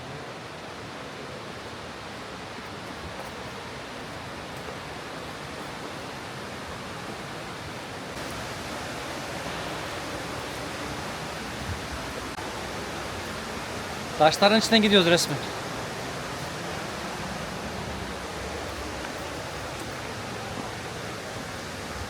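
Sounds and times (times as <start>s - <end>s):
flowing water rushing: 0.0s - 22.0s.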